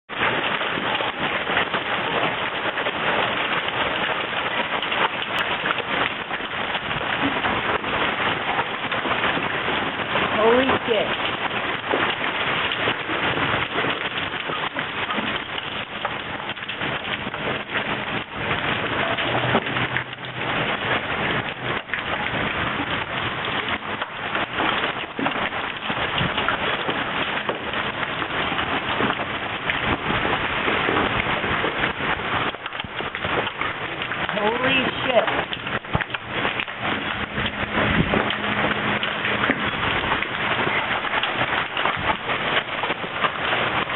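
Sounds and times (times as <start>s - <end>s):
hail striking a swimming pool: 0.1s - 43.9s.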